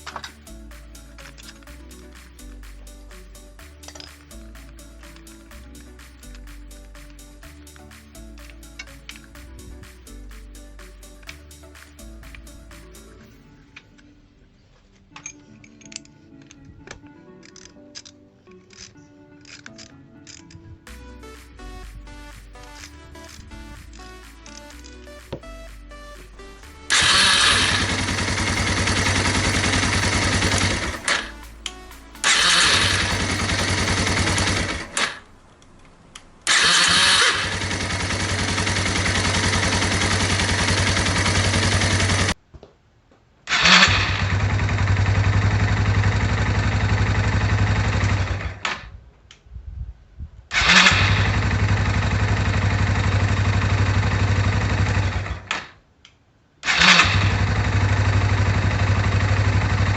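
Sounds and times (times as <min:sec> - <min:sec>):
motorcycle engine idling: 0:26.9 - 0:35.0, 0:37.5 - 0:42.3, 0:57.2 - 0:59.9.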